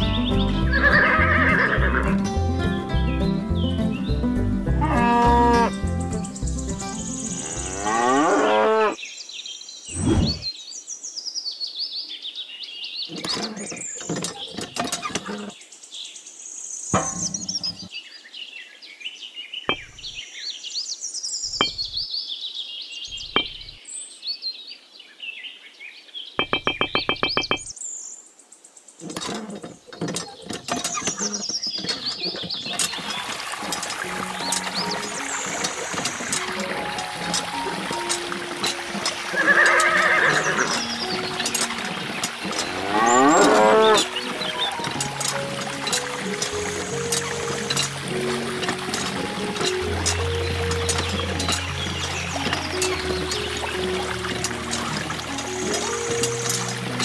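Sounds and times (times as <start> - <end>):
birds chirping: 0.0 - 57.0
short fast rattle: 17.0 - 17.8.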